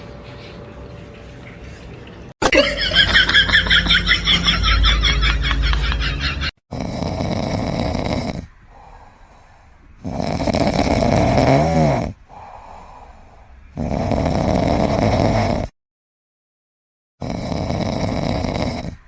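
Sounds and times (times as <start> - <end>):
pet snoring: 6.7 - 9.4, 10.0 - 15.8, 17.2 - 19.0.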